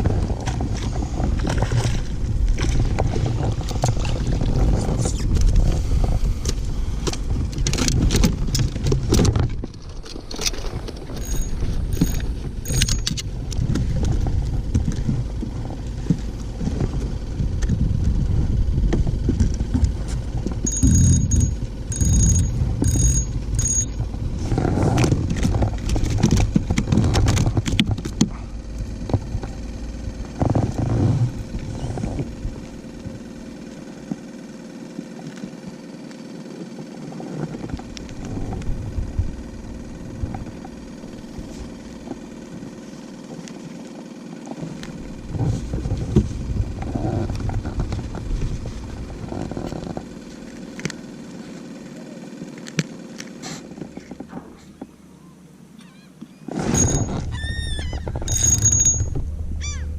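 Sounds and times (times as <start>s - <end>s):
wind and water rumble: 0.0s - 51.8s, 56.2s - 59.9s
high-pitched electronic beeps: 20.6s - 24.0s.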